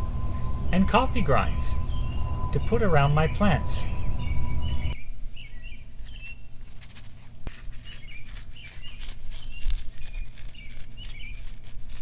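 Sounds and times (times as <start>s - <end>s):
songbirds chirping: 0.0s - 6.3s.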